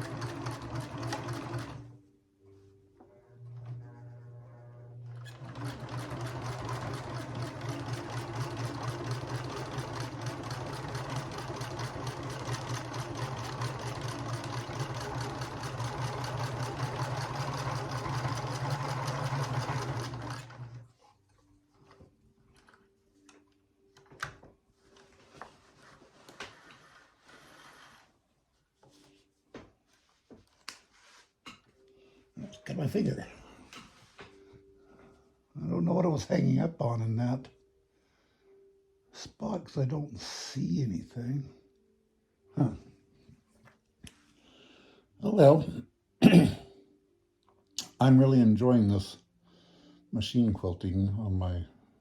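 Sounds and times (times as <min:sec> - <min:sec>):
sewing machine stitching: 0:00.0 - 0:01.9, 0:03.4 - 0:20.8.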